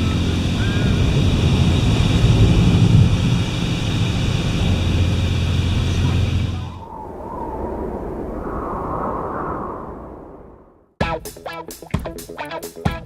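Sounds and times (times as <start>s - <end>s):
car wash hiss: 0.0s - 6.8s
car wash machinery hum: 0.0s - 6.8s.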